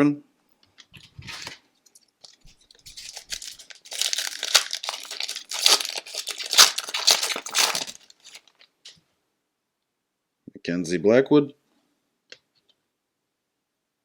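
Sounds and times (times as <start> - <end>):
foil wrapper tearing and crinkling: 2.8 - 8.6.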